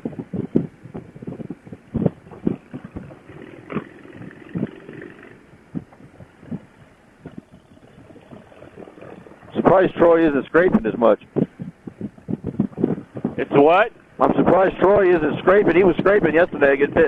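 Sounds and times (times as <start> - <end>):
motorcycle engine drone: 0.0 - 13.6
wind buffeting helmet microphone: 0.0 - 17.0.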